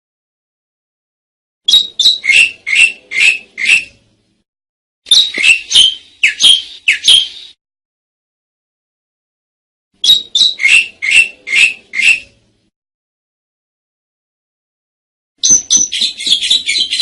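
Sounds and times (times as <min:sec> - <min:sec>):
starling calling scratchy notes: 0:01.7 - 0:04.0, 0:10.1 - 0:12.4, 0:15.5 - 0:17.0.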